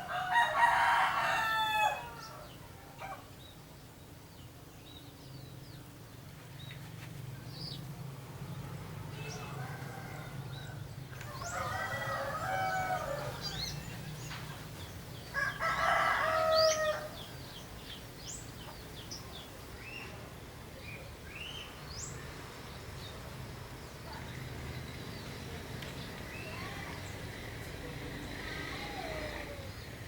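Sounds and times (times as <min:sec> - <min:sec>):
rooster crowing: 0:00.0 - 0:03.2, 0:09.3 - 0:13.8, 0:15.3 - 0:17.2
small birds chirping: 0:01.2 - 0:30.0.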